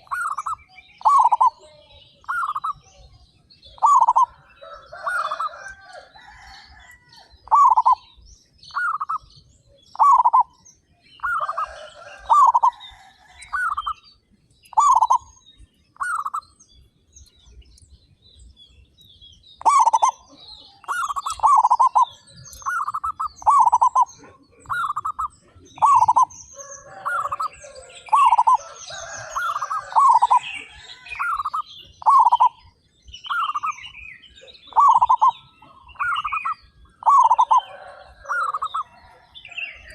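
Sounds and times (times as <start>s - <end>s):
doves cooing: 0.0s - 2.8s, 3.7s - 8.1s, 9.9s - 10.6s, 11.2s - 14.0s, 14.7s - 15.3s, 19.6s - 32.7s, 34.5s - 39.9s.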